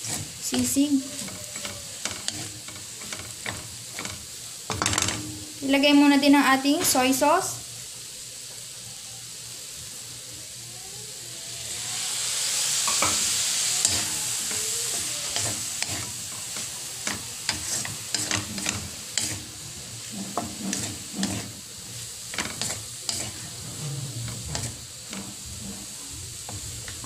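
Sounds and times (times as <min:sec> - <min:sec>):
wooden spatula scraping a pan: 0:00.0 - 0:05.5, 0:12.9 - 0:27.0
fish frying in a hot pan: 0:00.0 - 0:27.0.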